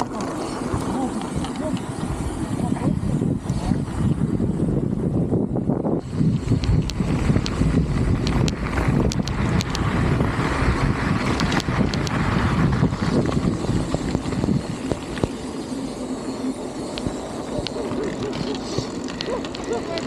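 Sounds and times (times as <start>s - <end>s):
wind buffeting microphone: 0.0s - 20.0s
sharp clicks and rattles: 6.0s - 20.0s.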